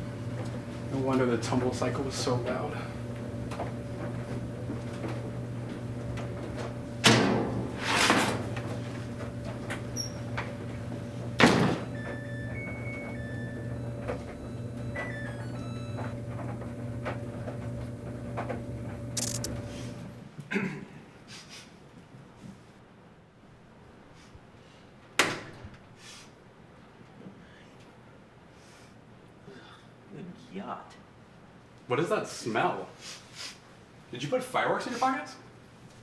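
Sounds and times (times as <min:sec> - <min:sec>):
steady low hum: 0:00.0 - 0:20.2
washing machine door banging shut: 0:07.0 - 0:08.5, 0:11.4 - 0:11.9
electronic beeps stepping down: 0:11.9 - 0:16.2, 0:19.2 - 0:19.6.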